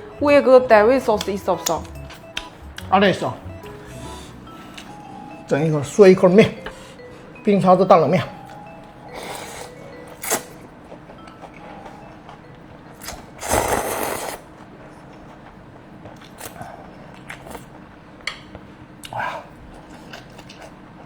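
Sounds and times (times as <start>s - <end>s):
slurping noodles: 13.4s - 14.5s.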